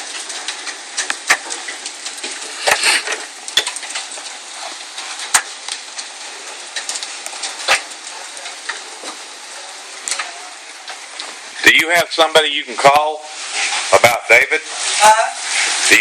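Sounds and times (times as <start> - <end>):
hailstones cracking on hard surfaces: 0.0 - 16.0
hiss of hail and rain: 0.0 - 16.0.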